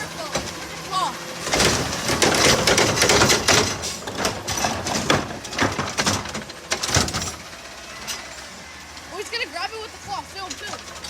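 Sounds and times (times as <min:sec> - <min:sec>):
garbage truck dumping trash can: 0:00.0 - 0:11.0.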